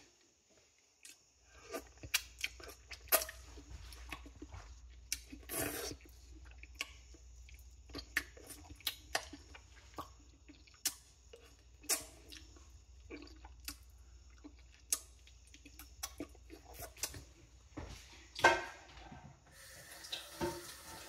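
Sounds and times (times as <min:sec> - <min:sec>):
chewing and mouth smacking: 0:01.0 - 0:17.4.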